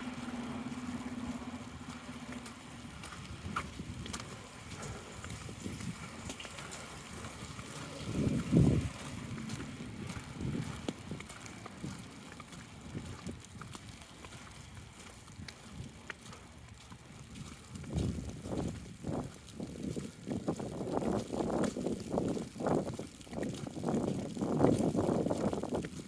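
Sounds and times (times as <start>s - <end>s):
wind gusting across microphone: 2.6s - 26.0s.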